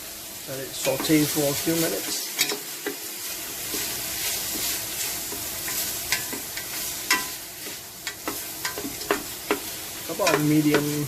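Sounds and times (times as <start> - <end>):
onions sizzling in hot oil: 0.0 - 11.0
utensil tapping a pot: 8.0 - 11.0.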